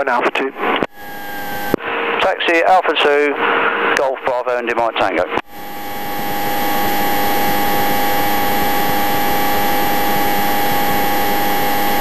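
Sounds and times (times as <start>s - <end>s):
aircraft engine and propeller drone: 5.4s - 12.0s.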